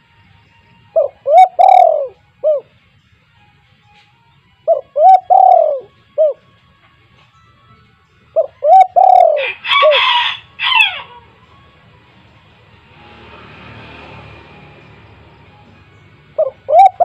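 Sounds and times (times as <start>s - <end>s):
dove cooing: 1.0s - 2.7s, 4.6s - 6.4s, 8.4s - 11.3s, 16.3s - 17.0s.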